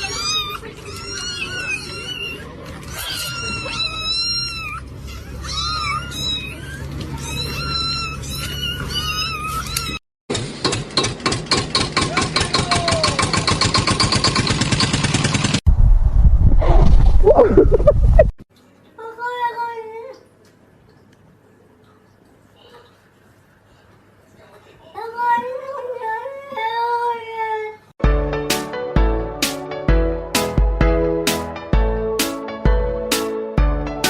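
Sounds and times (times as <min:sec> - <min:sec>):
kittens mewing: 0:00.0 - 0:10.0.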